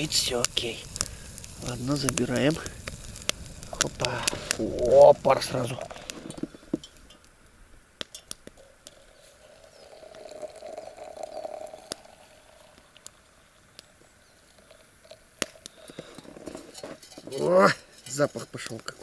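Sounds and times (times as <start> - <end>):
water pouring: 0.0 - 7.2, 8.6 - 13.7.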